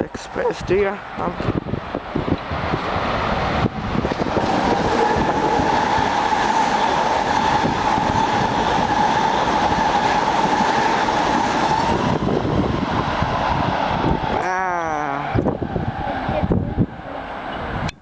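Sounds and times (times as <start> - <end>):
train wheels clattering over rails: 1.4 - 14.3.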